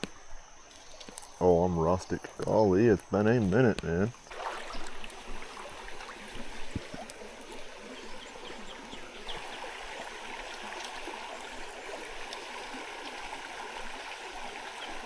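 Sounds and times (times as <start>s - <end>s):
stream rushing over rocks: 3.8s - 15.0s.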